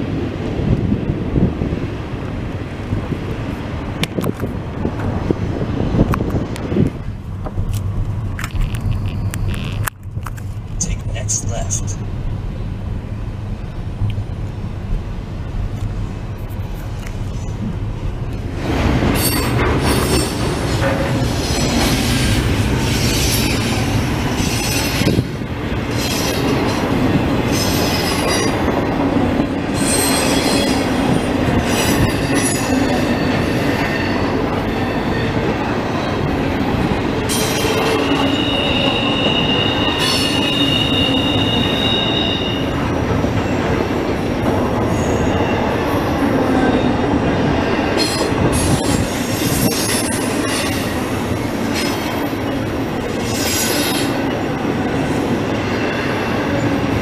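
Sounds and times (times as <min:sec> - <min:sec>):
freight train wheels rumbling: 0:00.0 - 0:57.0
high wheel squeal: 0:08.6 - 0:09.8, 0:29.8 - 0:30.9, 0:37.3 - 0:42.8.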